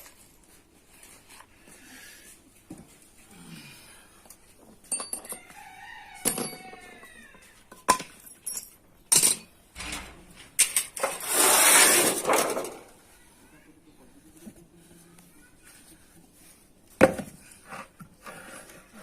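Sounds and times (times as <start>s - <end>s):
metallic clinks and knocks: 4.8s - 5.5s, 7.7s - 11.2s.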